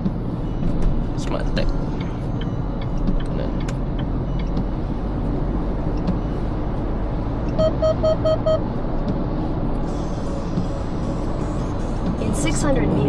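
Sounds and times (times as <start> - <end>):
car road and engine noise: 0.0 - 13.0
short electronic beeps: 7.5 - 8.6.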